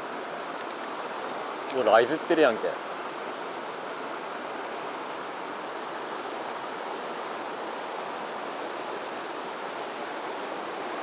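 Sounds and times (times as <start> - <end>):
stream water flowing: 0.0 - 11.0.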